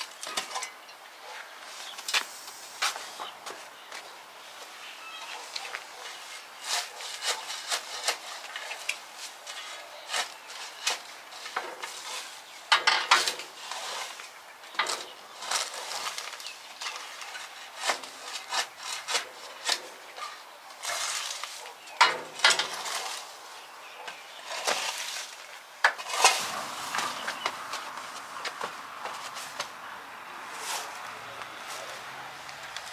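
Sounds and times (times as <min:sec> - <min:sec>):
short scraping rubs: 0:26.0 - 0:29.8.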